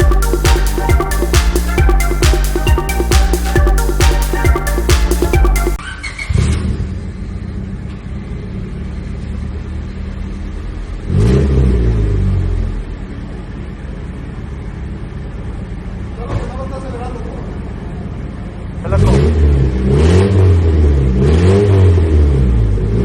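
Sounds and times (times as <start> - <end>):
car engine idling and revving: 6.3 - 16.6, 17.4 - 23.0.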